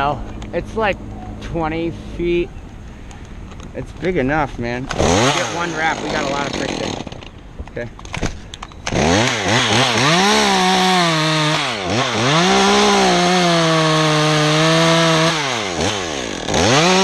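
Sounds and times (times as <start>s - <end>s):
chainsaw revving and cutting: 4.9s - 7.3s, 8.9s - 17.0s.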